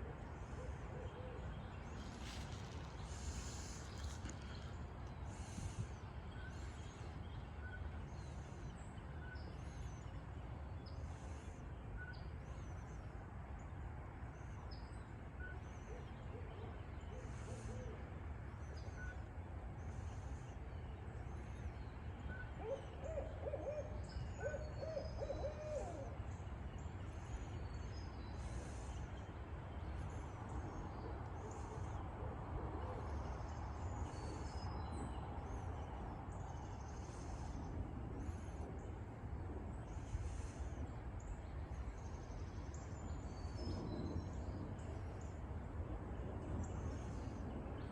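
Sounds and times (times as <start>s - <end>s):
low background rumble: 0.0s - 47.9s.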